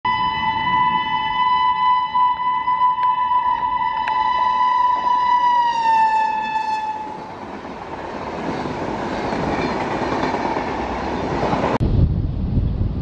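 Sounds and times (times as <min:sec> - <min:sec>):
locomotive horn: 0:00.1 - 0:07.3
coaches wheel and rail noise: 0:00.1 - 0:11.8.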